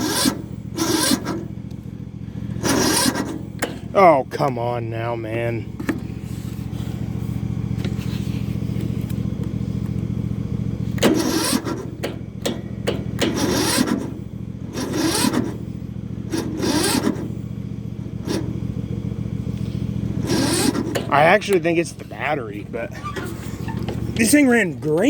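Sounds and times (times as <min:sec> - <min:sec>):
engine idling: 0:00.0 - 0:25.0
mower starter cranking: 0:00.0 - 0:25.0.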